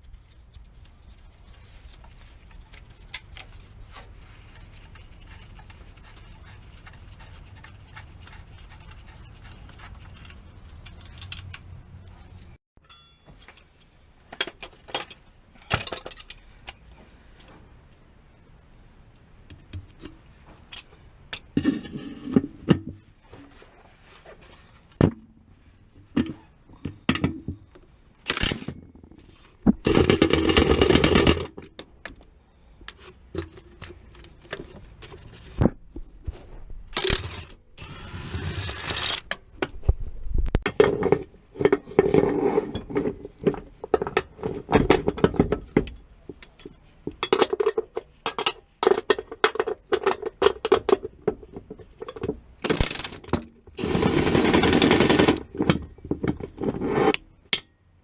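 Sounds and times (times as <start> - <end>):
metal tools clinking and scraping: 2.4 - 16.8, 40.9 - 51.1
steady mechanical noise: 36.9 - 39.4.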